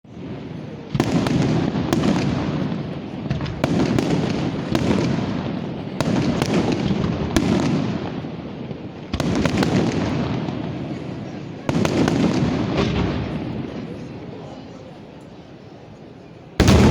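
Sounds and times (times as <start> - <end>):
fireworks bangs with rumbling echo: 0.1 - 14.4, 16.6 - 16.9
fireworks crackling: 16.6 - 16.9.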